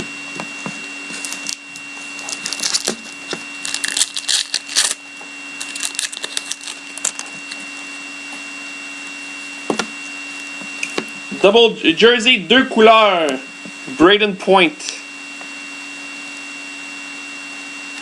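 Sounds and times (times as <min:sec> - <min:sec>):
card packs crinkling and rustling: 0:01.1 - 0:07.8.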